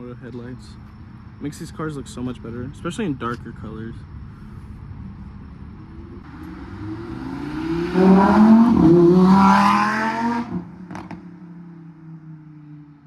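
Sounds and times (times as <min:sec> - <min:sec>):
car engine revving hard: 0:06.3 - 0:11.2.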